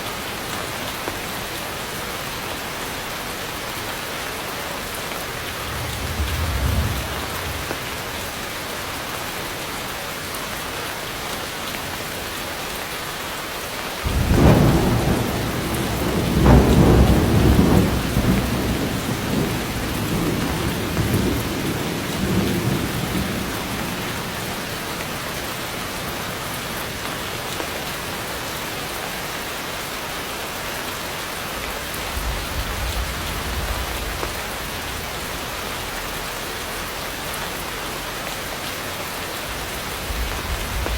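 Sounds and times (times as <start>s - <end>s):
heavy rain: 0.0s - 40.9s
thunder rumbling: 4.9s - 9.0s, 14.0s - 27.4s, 31.9s - 35.9s, 39.3s - 40.9s.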